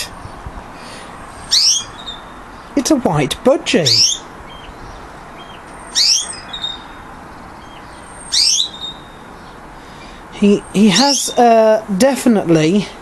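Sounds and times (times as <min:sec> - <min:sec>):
budgerigar chirping: 0:01.4 - 0:02.8, 0:03.8 - 0:11.5.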